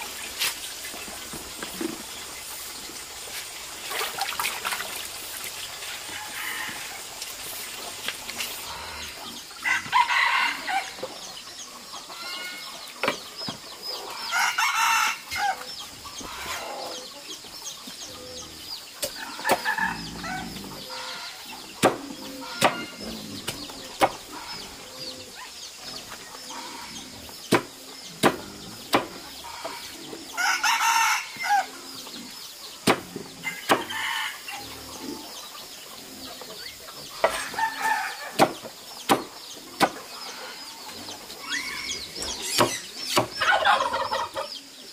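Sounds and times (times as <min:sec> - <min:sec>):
chickens clucking: 0:05.2 - 0:44.9
rooster crowing: 0:09.6 - 0:11.0, 0:30.4 - 0:31.7, 0:33.4 - 0:34.6.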